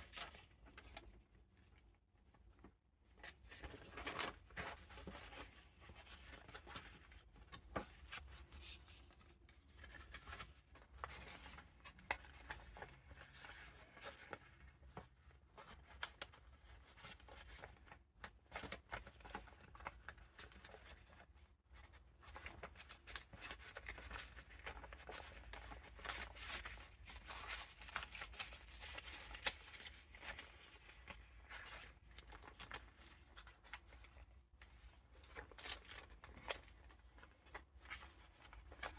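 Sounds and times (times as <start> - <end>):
paper pages rustling: 3.2 - 38.9.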